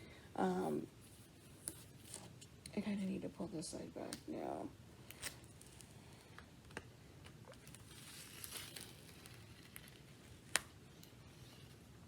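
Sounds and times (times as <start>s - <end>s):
plastic film peeling rustle: 5.0s - 11.9s.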